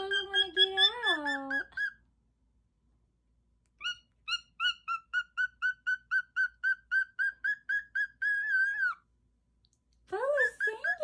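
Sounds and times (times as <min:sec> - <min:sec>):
parrot whistling: 0:03.8 - 0:09.0.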